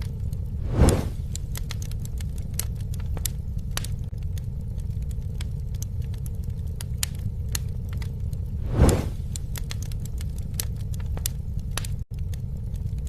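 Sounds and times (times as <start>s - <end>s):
campfire crackling and popping: 0.0s - 13.0s
low rumble: 0.0s - 13.0s.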